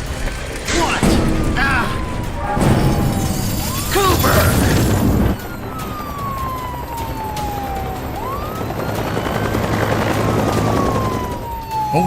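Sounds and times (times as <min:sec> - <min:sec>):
low rumble: 0:00.0 - 0:08.3
police siren wailing: 0:00.0 - 0:12.0.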